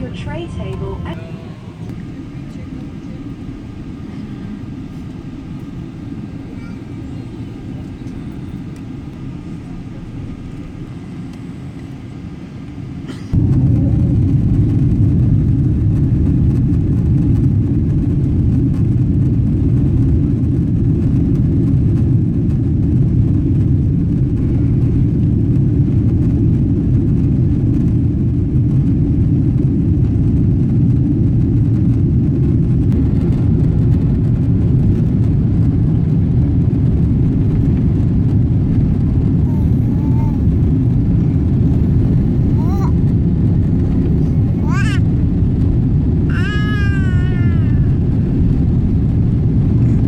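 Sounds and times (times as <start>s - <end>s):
airplane cabin engine rumble: 0.0s - 50.0s.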